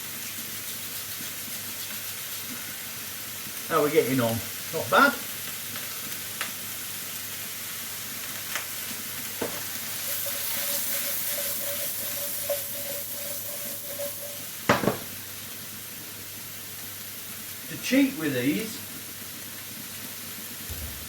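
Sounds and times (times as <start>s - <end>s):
onions and mushrooms sizzling in a pan: 0.0s - 21.0s
utensil knocking against pan: 10.2s - 15.1s.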